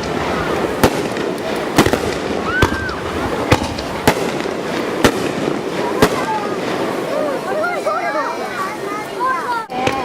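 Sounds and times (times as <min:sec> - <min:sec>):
fireworks bangs: 0:00.0 - 0:08.4, 0:09.7 - 0:10.0.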